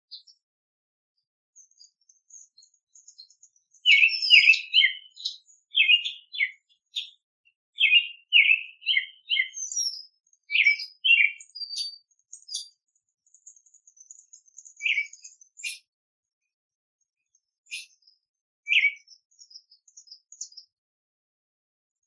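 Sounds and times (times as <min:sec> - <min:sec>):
small songbirds chirping: 0:00.0 - 0:20.9
loud repeated bird chirps: 0:03.8 - 0:12.7, 0:14.6 - 0:15.9, 0:17.7 - 0:18.0, 0:18.7 - 0:19.1
faint high twittering: 0:17.7 - 0:18.0.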